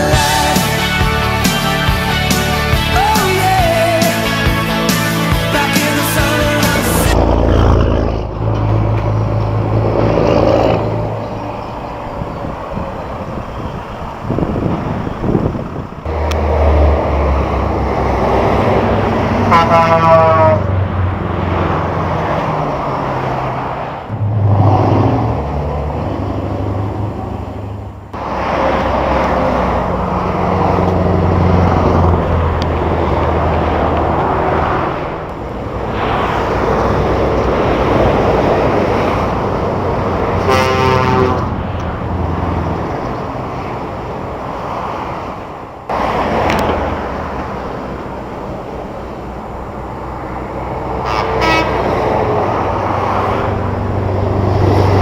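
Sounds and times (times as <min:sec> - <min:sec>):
truck diesel engines driving by: 0:00.0 - 0:55.0
air horn: 0:19.3 - 0:20.8, 0:40.4 - 0:41.6, 0:51.0 - 0:52.0.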